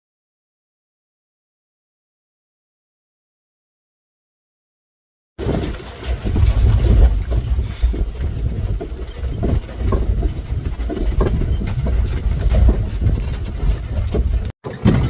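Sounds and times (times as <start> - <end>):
hoof clops: 5.4 - 15.0
wagon rolling with rattles: 5.4 - 15.0.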